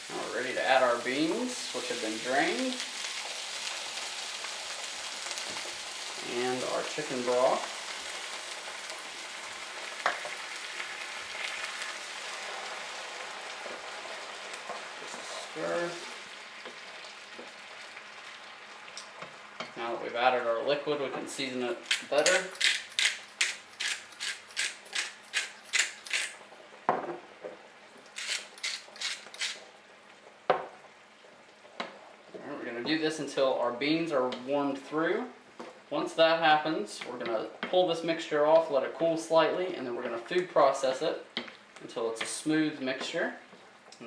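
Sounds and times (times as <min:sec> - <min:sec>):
food sizzling in pan: 0:00.0 - 0:44.0
spice mill grinding: 0:21.8 - 0:26.4, 0:28.2 - 0:29.6.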